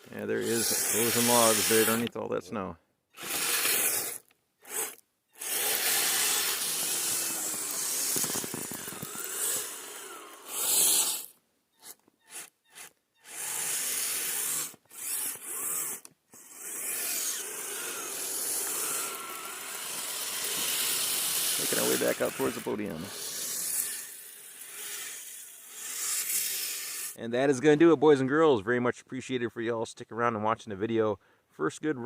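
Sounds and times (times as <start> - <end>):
rough rubbing noise: 0.0 - 2.1, 3.2 - 12.5, 20.4 - 24.2
toy truck electric motor whining: 0.2 - 2.1, 3.1 - 27.2.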